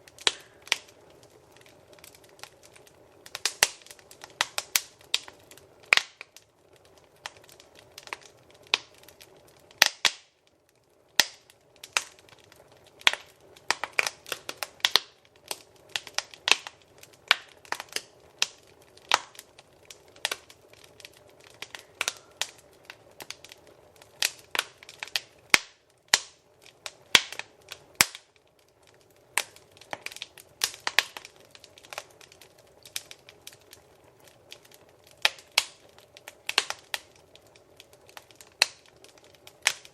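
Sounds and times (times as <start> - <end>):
hiss of flames: 0.0 - 10.4
wood fire pops and snaps: 0.0 - 39.9.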